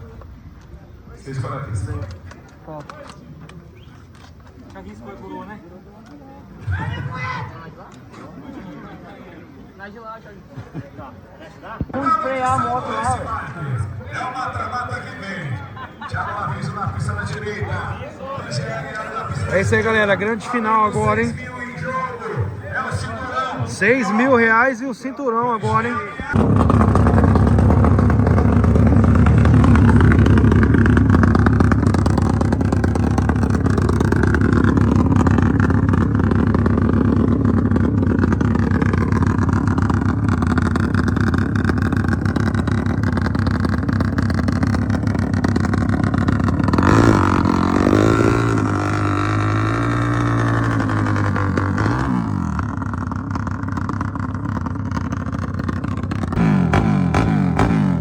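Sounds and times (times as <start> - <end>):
motorcycle engines running loud: 11.9 - 24.8, 25.6 - 58.0.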